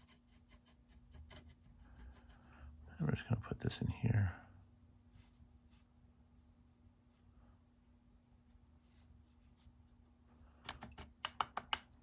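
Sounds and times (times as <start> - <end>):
paintbrush rubbing on paper: 0.0 - 2.8, 5.1 - 10.4
faint steady hum: 0.0 - 12.0
sharp taps and clicks: 10.6 - 12.0.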